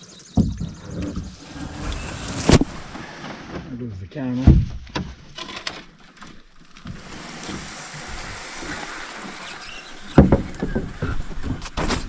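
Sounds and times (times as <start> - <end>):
canoe knocking and scraping: 0.1 - 12.0
loud thump: 4.4 - 5.1.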